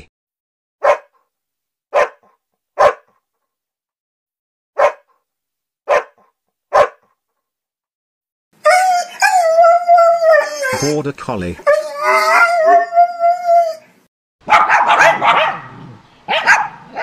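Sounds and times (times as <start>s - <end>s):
dog barking: 0.8s - 1.2s, 1.9s - 3.2s, 4.8s - 5.2s, 5.9s - 7.1s, 14.4s - 17.0s
dog howling: 8.6s - 11.0s, 11.6s - 13.9s.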